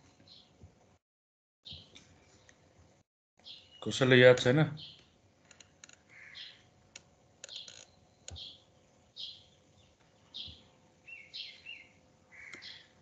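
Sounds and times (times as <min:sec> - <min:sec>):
bird chirping: 0:00.2 - 0:00.6, 0:01.7 - 0:02.6, 0:03.4 - 0:04.1, 0:04.8 - 0:05.2, 0:06.2 - 0:06.7, 0:07.4 - 0:13.0.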